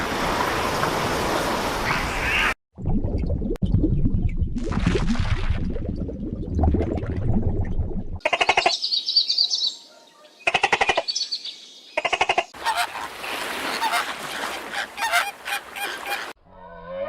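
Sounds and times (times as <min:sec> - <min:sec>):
fowl rattling pulsed calls: 0:12.0 - 0:16.3.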